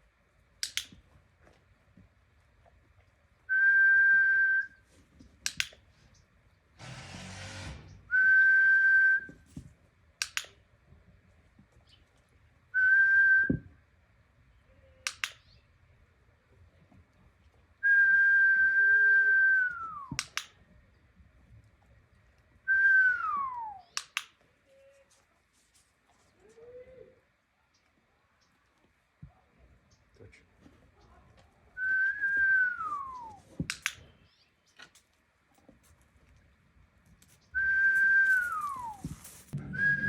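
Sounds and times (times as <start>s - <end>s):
sharp click: 0.6s - 1.0s, 5.4s - 5.8s, 10.2s - 10.6s, 15.0s - 15.6s, 20.1s - 20.6s, 24.0s - 24.4s, 33.7s - 34.1s
dog whistle tones: 37.6s - 40.0s.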